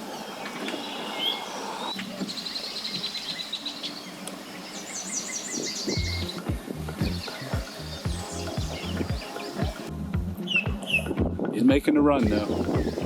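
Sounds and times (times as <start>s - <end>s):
birds chirping and trilling: 0.0s - 13.0s
outdoor background noise: 0.0s - 13.0s.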